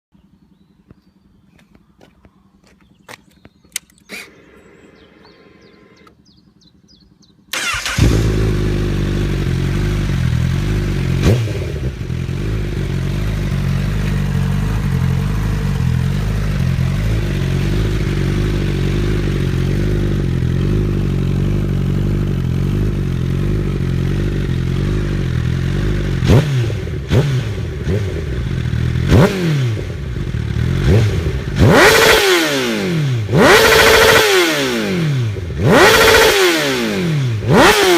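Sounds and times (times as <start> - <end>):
motorcycle engine idling and revving: 0.1 - 37.9
clicks: 1.6 - 6.2.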